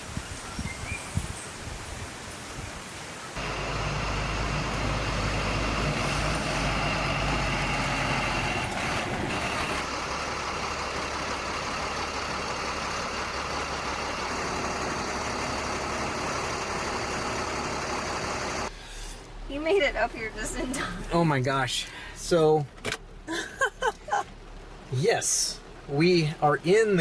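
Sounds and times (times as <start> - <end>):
rain hissing: 0.0 - 27.0
truck engine idling: 3.4 - 19.0.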